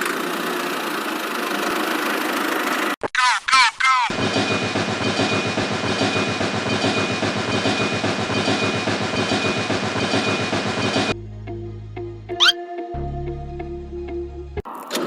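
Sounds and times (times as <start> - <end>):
small engine chugging: 0.0 - 2.9.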